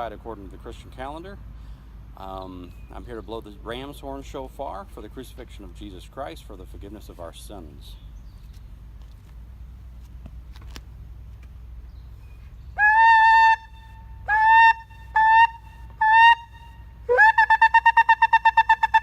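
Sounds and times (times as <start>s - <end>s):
ram's horn blasts: 12.8s - 19.0s.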